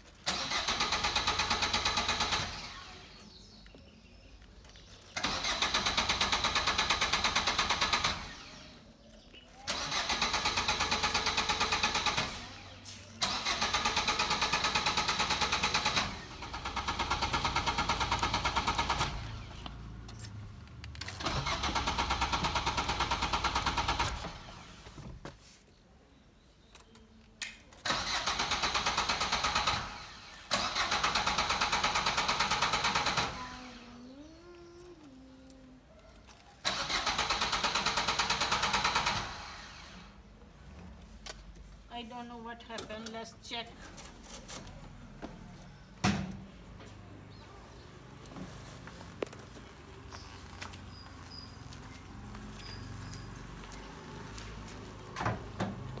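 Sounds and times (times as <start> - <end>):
car engine cranking: 0.0 - 3.0, 5.1 - 8.7, 9.7 - 24.8, 27.8 - 34.0, 36.2 - 40.0.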